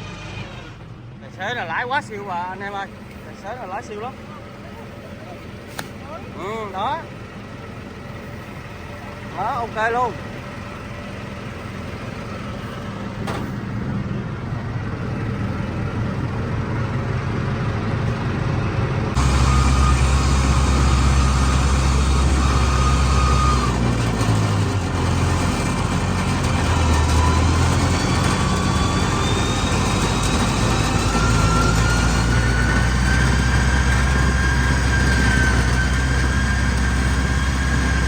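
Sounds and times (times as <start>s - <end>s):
heavy diesel engine: 0.0s - 38.0s
rising whine: 11.5s - 38.0s.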